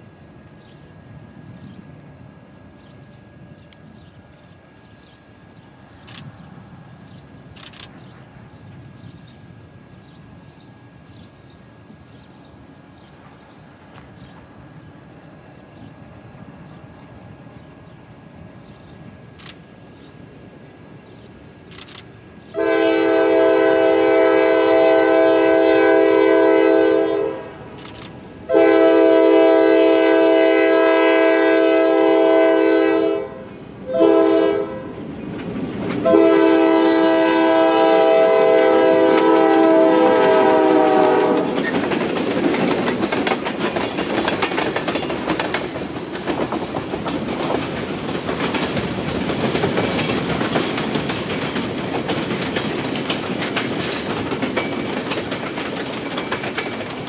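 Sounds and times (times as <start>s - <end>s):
train wheels rumbling on rail: 0.0s - 57.0s
locomotive air horn blasts: 22.6s - 27.6s, 28.5s - 35.0s, 36.0s - 41.5s.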